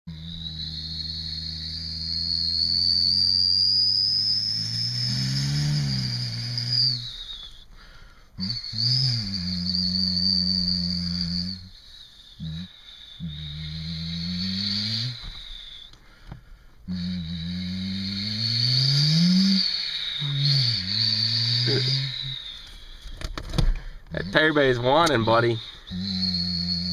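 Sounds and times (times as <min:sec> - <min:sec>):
person imitating an engine: 0:00.1 - 0:07.0, 0:16.9 - 0:22.5, 0:24.1 - 0:26.9.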